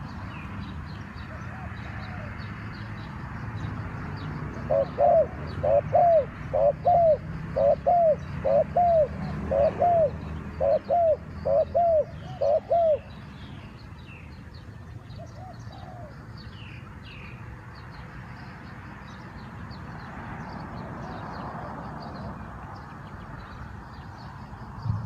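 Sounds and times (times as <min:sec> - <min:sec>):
small birds chirping: 0:00.0 - 0:25.0
steady outdoor hiss: 0:00.0 - 0:25.0
dove cooing: 0:04.6 - 0:13.1, 0:15.2 - 0:16.2.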